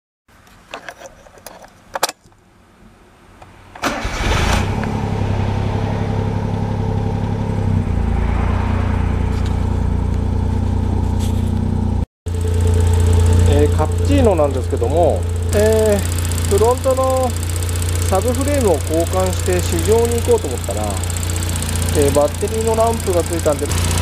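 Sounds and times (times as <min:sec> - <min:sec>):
car engine cranking and idling: 0:03.3 - 0:24.0
ignition key clicks and rattles: 0:15.3 - 0:23.7.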